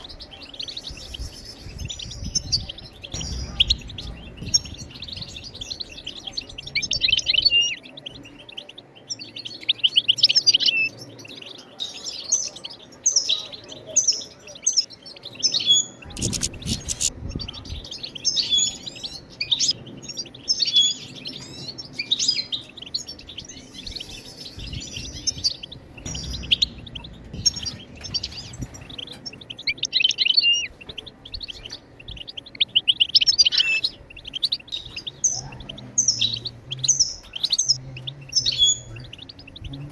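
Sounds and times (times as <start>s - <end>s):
goldfinch twittering: 15.8s - 39.9s.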